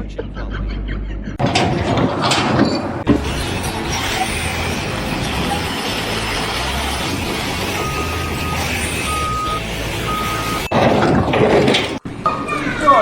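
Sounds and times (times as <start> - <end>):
work site noise: 1.4 - 13.0
reversing beeper: 5.4 - 11.2.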